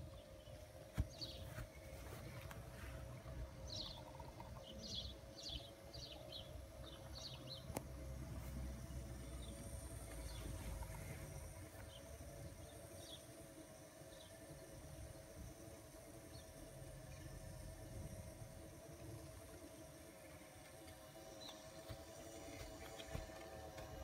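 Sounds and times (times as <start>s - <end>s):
steady hum: 0.0s - 24.0s
bird chirping: 3.6s - 7.7s.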